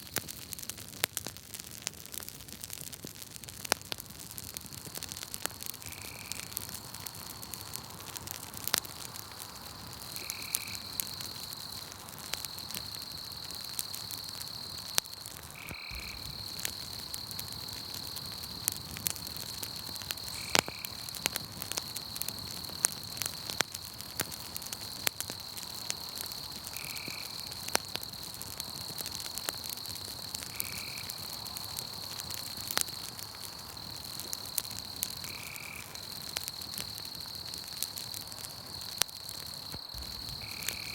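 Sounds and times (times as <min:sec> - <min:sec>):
campfire crackling and popping: 0:00.0 - 0:40.9
high-pitched insect trill: 0:10.0 - 0:23.8, 0:24.8 - 0:33.0, 0:33.6 - 0:37.8, 0:38.8 - 0:40.9.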